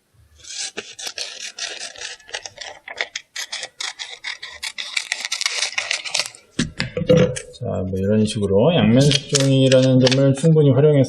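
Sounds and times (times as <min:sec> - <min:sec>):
scissors snipping paper: 0:00.4 - 0:06.4, 0:09.0 - 0:10.3
paper rustle: 0:00.4 - 0:06.6, 0:09.0 - 0:10.5.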